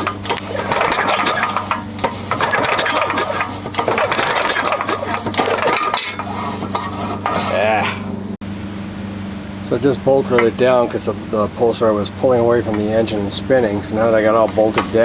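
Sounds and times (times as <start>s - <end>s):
recoil pull starter rattling: 0.0s - 7.9s.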